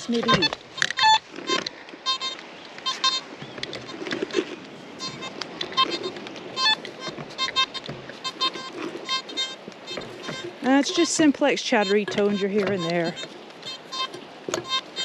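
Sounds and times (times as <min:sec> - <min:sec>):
metal detector beeps: 0:00.0 - 0:01.2, 0:09.9 - 0:14.9.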